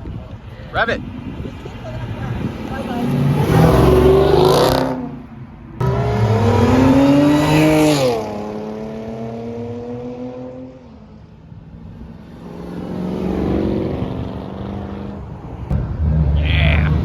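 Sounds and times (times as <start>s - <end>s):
car engine accelerating: 5.8s - 10.8s, 12.3s - 17.0s.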